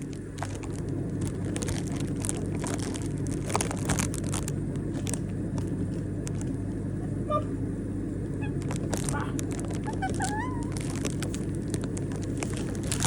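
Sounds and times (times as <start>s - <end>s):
steady low hum: 0.0s - 13.0s
parrot chirp: 8.4s - 10.7s
parrot clicks and rustles: 8.6s - 13.0s.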